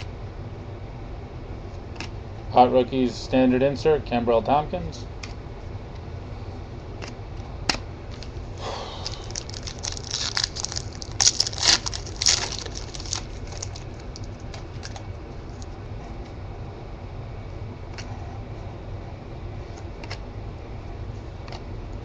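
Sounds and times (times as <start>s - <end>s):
trading cards shuffling: 9.0s - 16.2s.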